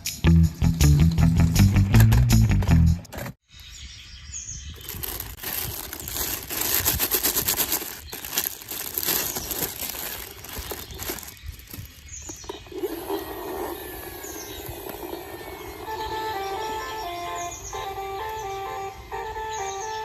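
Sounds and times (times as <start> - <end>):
crackling and crinkling: 4.7 - 13.8.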